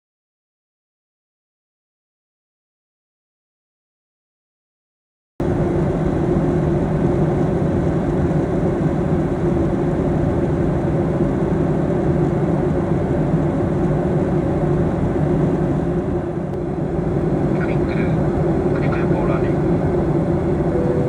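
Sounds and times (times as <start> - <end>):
airliner engine drone in cabin: 5.4 - 21.0
low hums: 15.9 - 21.0.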